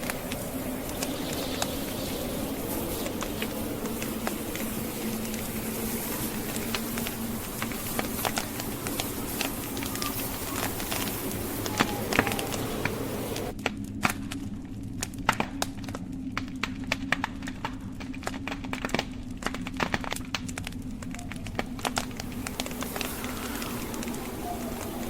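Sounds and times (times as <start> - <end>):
soft hiss: 0.0 - 13.5, 20.6 - 25.0
logs crackling and popping in fire: 0.0 - 25.0.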